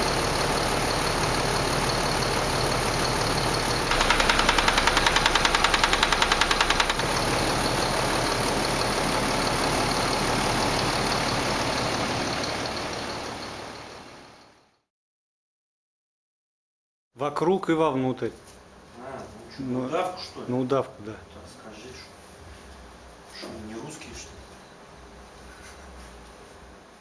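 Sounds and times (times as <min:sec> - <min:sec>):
truck diesel engine running: 0:00.0 - 0:14.4
fast even knocking: 0:03.9 - 0:07.4.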